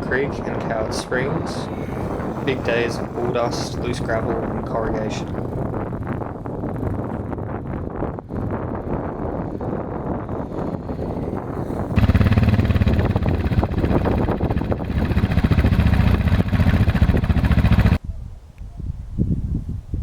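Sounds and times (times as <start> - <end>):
motorcycle engine running: 10.8 - 18.0.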